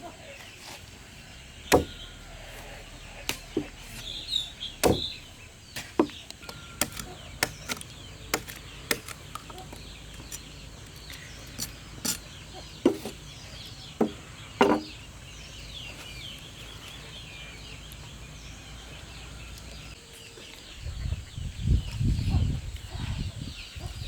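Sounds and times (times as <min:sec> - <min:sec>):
chickens clucking: 0:00.0 - 0:24.0
sharp knocks: 0:01.7 - 0:02.0, 0:04.8 - 0:05.2, 0:14.0 - 0:14.9.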